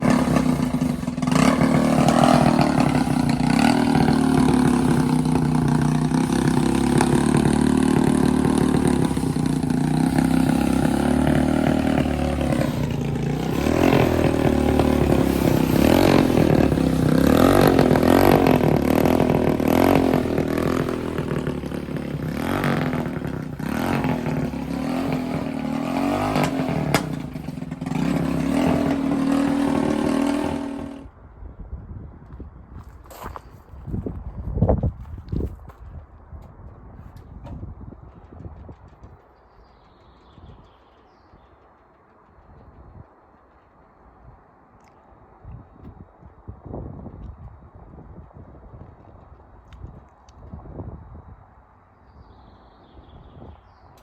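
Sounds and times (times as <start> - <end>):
small engine running: 0.0 - 31.1.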